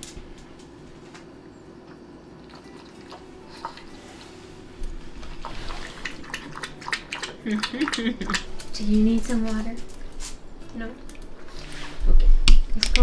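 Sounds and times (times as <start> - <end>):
dog lapping water: 2.4 - 4.3, 4.9 - 10.2.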